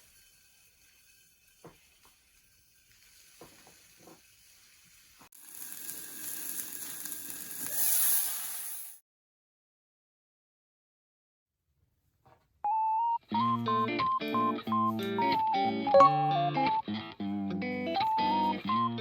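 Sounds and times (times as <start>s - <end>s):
fire crackling: 0.0s - 8.9s
loud hiss of flame: 2.8s - 9.0s.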